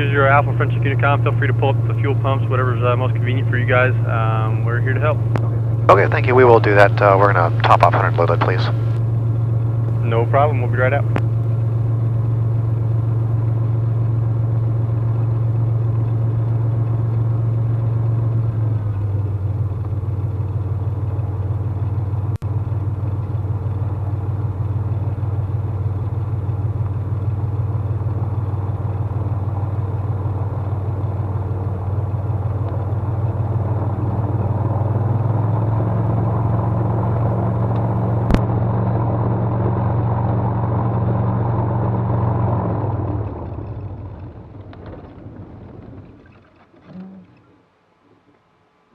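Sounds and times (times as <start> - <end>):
aircraft piston engine droning: 0.0 - 47.7.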